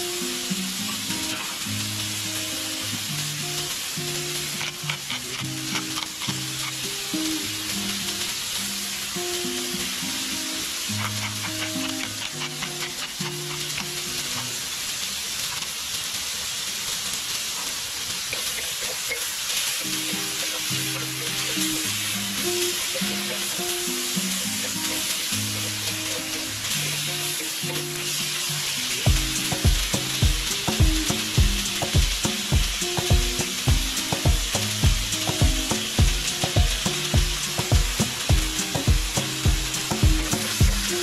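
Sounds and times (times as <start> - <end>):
food sizzling in a wok: 0.0 - 41.0
pepper grinder ticking: 4.4 - 6.8, 11.0 - 14.5
background music: 29.1 - 41.0.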